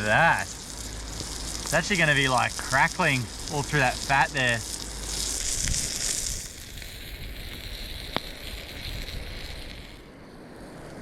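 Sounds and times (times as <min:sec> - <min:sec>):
steak sizzling on hot rock: 0:00.0 - 0:10.1
wind rumble on microphone: 0:05.4 - 0:11.0.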